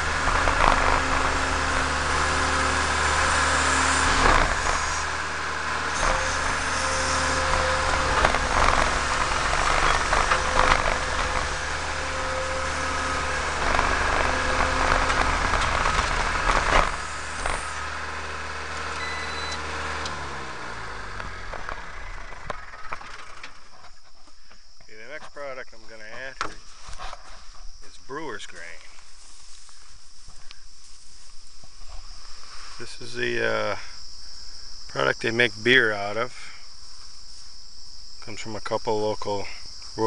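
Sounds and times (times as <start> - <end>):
diesel engine running: 0.0 - 24.2.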